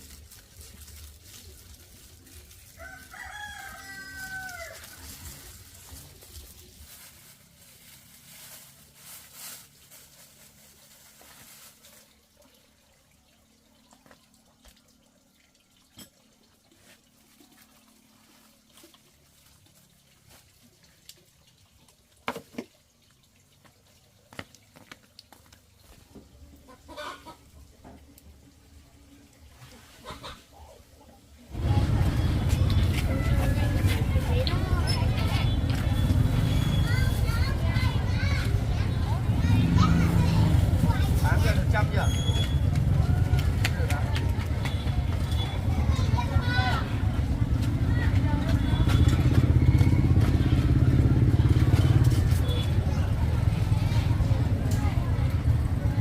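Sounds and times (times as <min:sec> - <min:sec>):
rooster crowing: 0:02.8 - 0:05.0.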